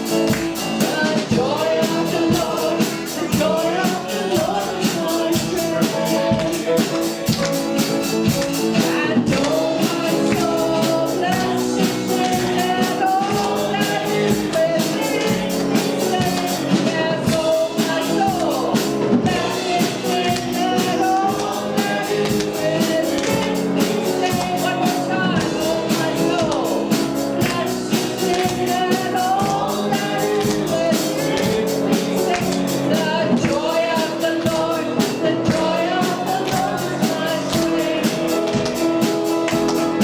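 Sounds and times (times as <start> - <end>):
live worship band music: 0.0 - 40.0.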